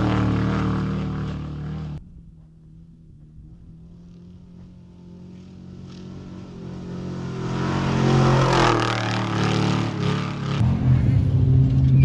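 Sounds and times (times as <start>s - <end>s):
dirt and tyre rush: 0.0s - 12.0s
truck engine approaching: 0.0s - 12.0s.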